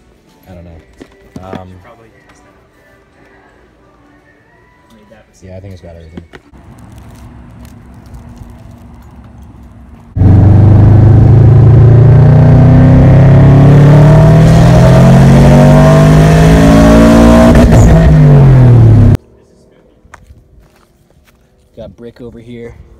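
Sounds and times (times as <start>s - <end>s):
background noise: 0.0s - 10.2s, 19.1s - 22.9s
loud car exhaust: 10.2s - 19.2s.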